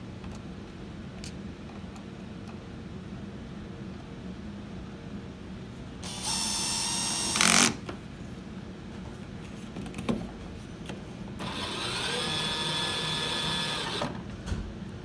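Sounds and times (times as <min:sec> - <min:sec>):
cordless drill driving screw: 0:06.0 - 0:07.8, 0:11.4 - 0:14.1.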